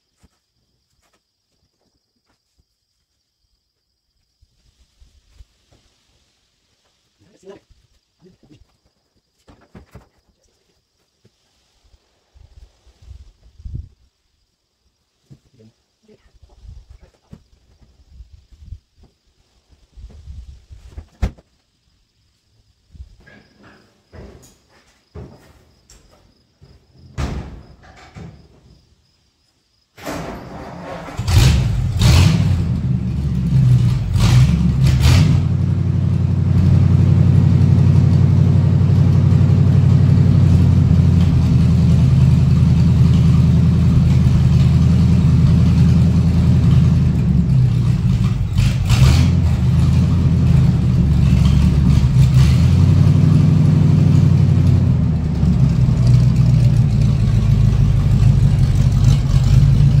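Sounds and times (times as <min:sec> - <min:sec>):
pickup engine running: 0:30.8 - 1:00.0.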